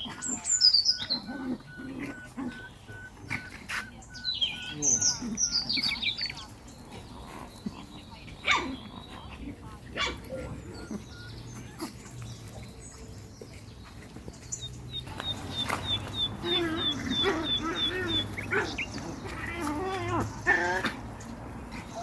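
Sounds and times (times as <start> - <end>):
small animal whining: 0.0 - 6.5, 15.2 - 21.0
bird chirping: 0.0 - 20.5.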